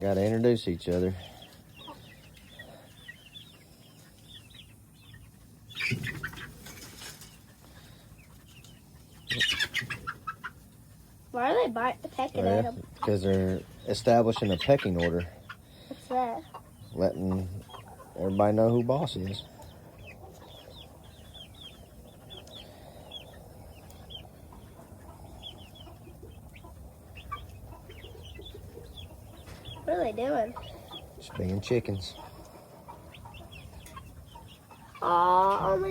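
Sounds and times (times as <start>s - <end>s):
chickens peeping and clucking: 0.0s - 35.9s
chickens squawking: 0.0s - 35.9s
wings flapping: 5.8s - 7.3s.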